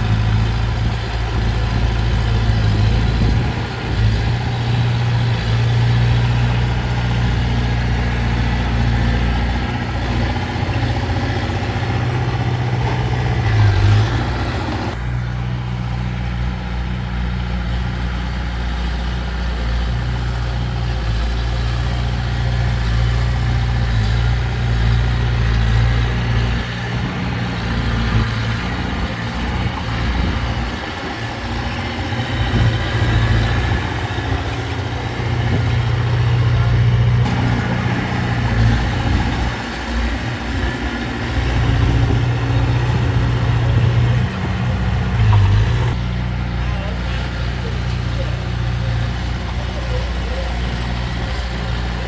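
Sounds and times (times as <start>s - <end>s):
heavy machinery diesel engine: 0.0s - 52.0s.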